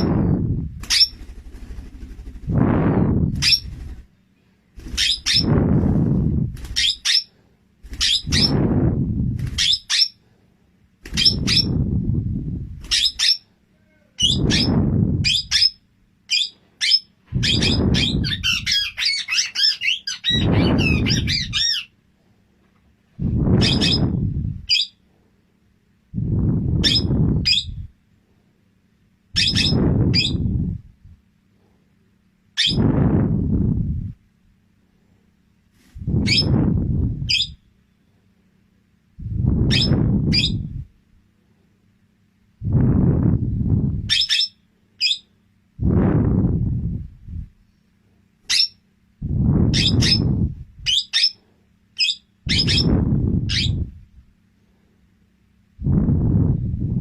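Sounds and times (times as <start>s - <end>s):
low noise bursts: 0.0s - 57.0s
parrot chirping: 0.9s - 1.2s, 3.4s - 3.7s, 5.0s - 5.5s, 6.8s - 7.3s, 8.0s - 8.5s, 9.6s - 10.2s, 11.2s - 11.7s, 12.9s - 13.4s, 14.2s - 21.9s, 23.6s - 24.0s, 29.4s - 30.4s, 32.6s - 32.8s, 39.7s - 40.6s, 44.1s - 45.3s, 48.5s - 48.8s, 49.7s - 51.4s, 52.0s - 52.9s, 53.5s - 53.8s.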